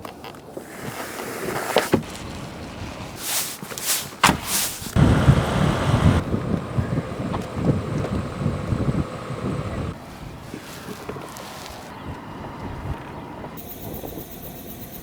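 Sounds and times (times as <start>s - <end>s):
wind noise on microphone: 2.0s - 3.2s, 4.2s - 14.3s
short whooshes and knocks: 3.3s - 5.0s.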